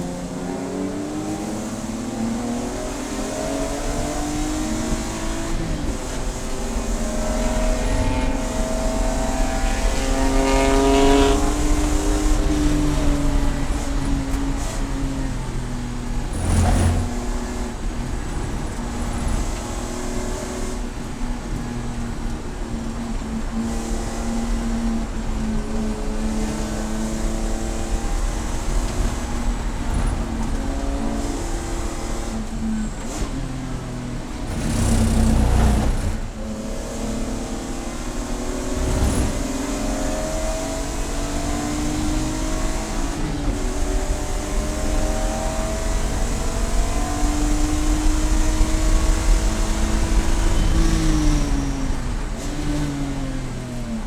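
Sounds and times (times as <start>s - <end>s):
race car engine revving: 0.0s - 54.0s
low rumbles: 11.4s - 21.9s.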